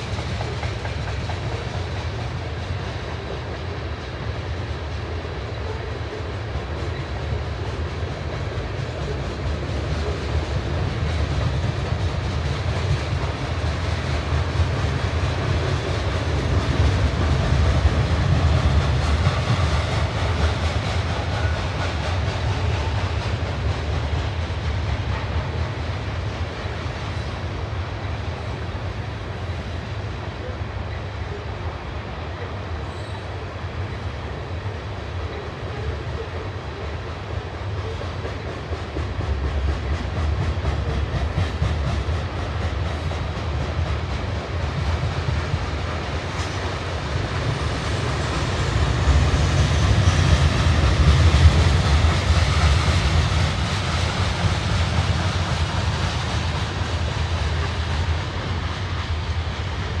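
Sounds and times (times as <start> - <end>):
freight train wheels rumbling: 0.0 - 60.0.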